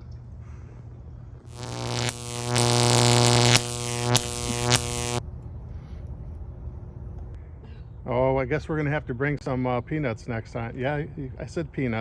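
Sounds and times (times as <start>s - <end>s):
low electrical buzz: 1.5s - 5.2s.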